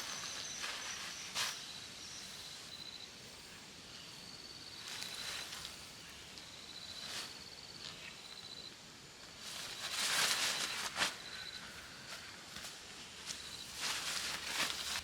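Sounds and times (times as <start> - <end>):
insects trilling: 0.0 - 15.0
low outdoor background: 0.0 - 15.0
short rustles: 9.5 - 15.0.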